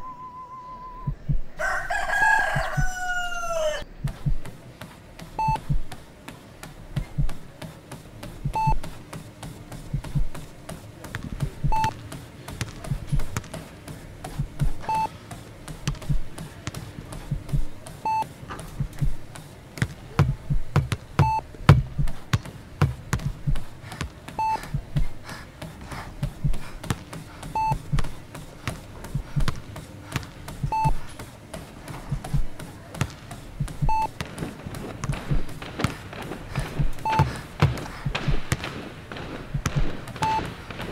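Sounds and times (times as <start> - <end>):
electronic heart monitor beep: 0.0 - 1.6, 5.4 - 5.9, 7.0 - 7.4, 8.4 - 9.0, 11.5 - 12.0, 12.9 - 13.4, 14.4 - 15.1, 17.3 - 19.2, 20.2 - 22.2, 24.4 - 25.2, 27.4 - 28.2, 30.6 - 31.1, 33.6 - 34.2, 36.6 - 37.4, 39.5 - 40.5
low thumps: 1.0 - 1.6, 3.9 - 4.6, 18.8 - 19.3, 20.2 - 23.8.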